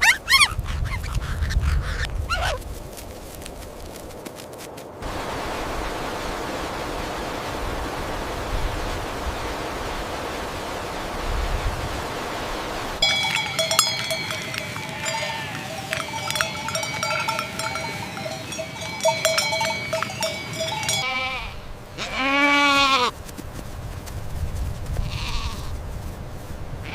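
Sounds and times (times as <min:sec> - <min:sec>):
steady rushing noise: 0:04.9 - 0:21.0
livestock bells clanking: 0:13.0 - 0:21.6
animal bleat: 0:20.9 - 0:23.2, 0:25.0 - 0:25.8.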